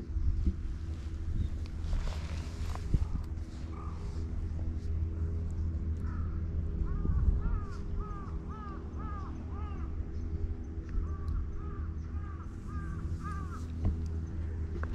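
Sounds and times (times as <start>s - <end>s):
steady low hum: 0.0s - 14.9s
bird calling: 6.0s - 14.9s.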